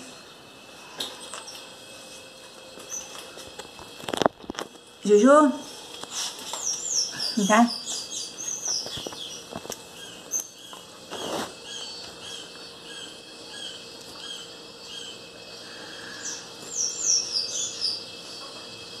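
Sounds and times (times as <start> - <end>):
small birds chirping: 2.7 - 3.4, 5.0 - 19.0.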